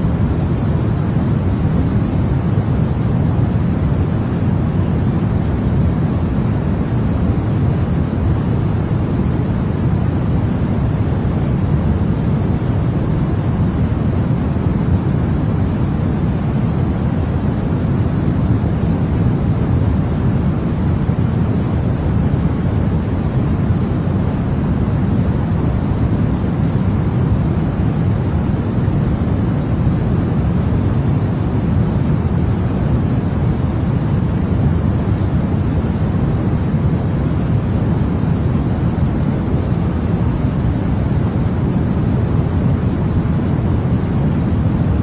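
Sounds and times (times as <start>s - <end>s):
white noise hiss: 0.0s - 45.0s.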